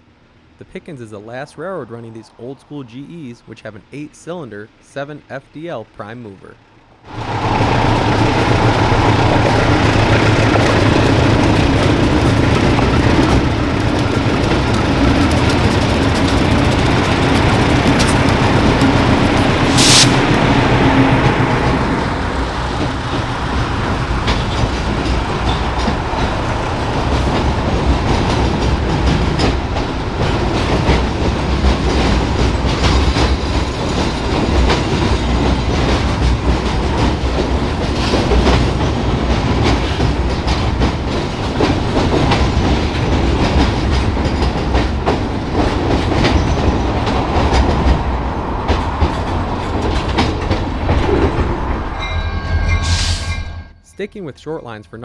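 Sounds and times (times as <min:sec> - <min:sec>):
diesel locomotive engines: 0:00.0 - 0:55.0
brief sharp high sound: 0:00.7 - 0:03.8, 0:19.7 - 0:20.4, 0:52.0 - 0:55.0
train wheels clacking over rail joints: 0:07.2 - 0:51.7.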